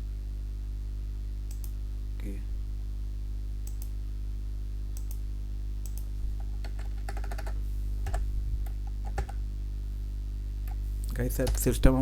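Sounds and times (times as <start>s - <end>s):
low electrical hum: 0.0s - 12.0s
typing on computer keyboard: 6.6s - 8.2s, 9.0s - 9.4s.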